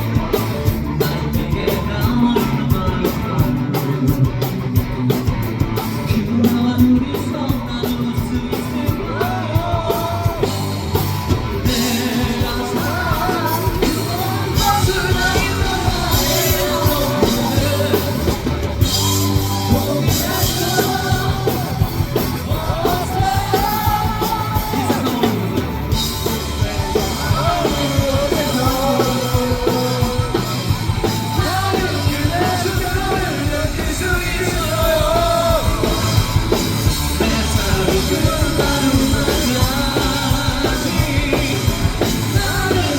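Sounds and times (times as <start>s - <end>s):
rock band playing live: 0.0s - 42.9s
person singing and shouting: 11.6s - 36.5s.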